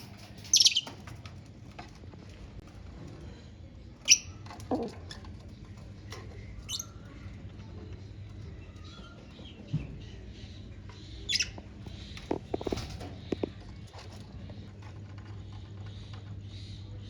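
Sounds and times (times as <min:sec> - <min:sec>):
steady low hum: 0:00.0 - 0:17.0
lovebirds chirping: 0:00.4 - 0:01.0, 0:04.0 - 0:13.6.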